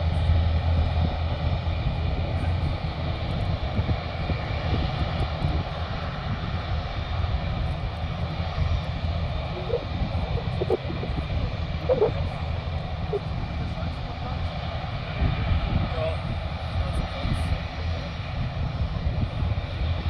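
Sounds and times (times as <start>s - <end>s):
jet engines deep rumble: 0.0s - 20.0s.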